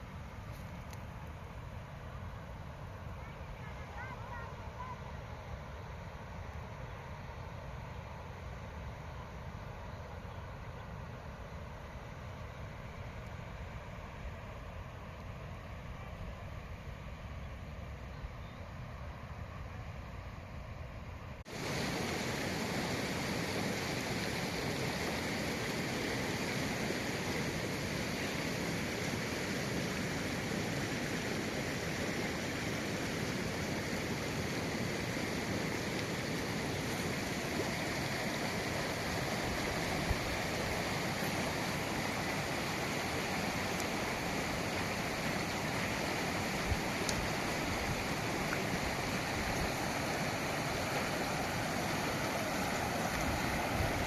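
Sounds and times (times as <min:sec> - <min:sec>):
stream rushing: 0:21.4 - 0:54.0.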